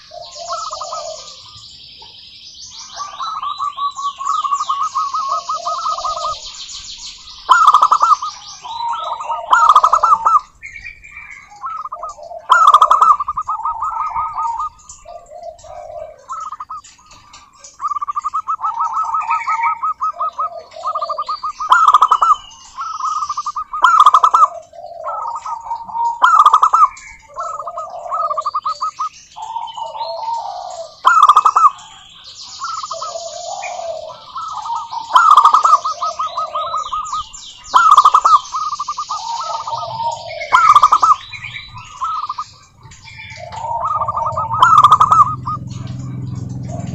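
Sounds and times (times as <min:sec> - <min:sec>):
doves cooing: 0:00.0 - 0:46.9
high-pitched chirping: 0:00.0 - 0:46.9.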